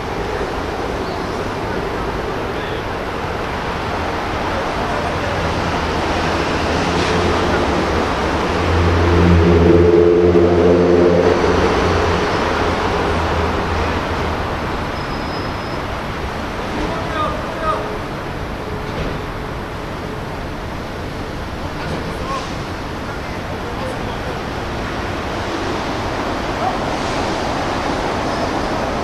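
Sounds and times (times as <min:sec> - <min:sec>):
traffic noise: 0:00.0 - 0:29.0
vehicle engine passing: 0:04.0 - 0:14.8.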